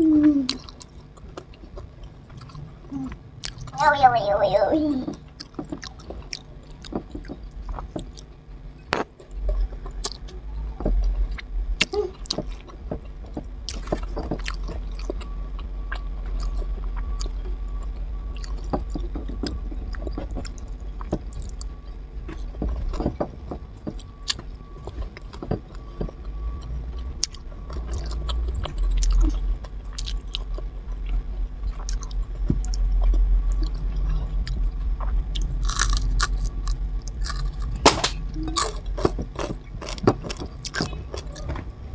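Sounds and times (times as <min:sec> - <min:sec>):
person chewing with mouth smacks: 0:00.0 - 0:03.8, 0:09.5 - 0:10.3, 0:35.3 - 0:41.6
steady low rumble: 0:00.0 - 0:41.9.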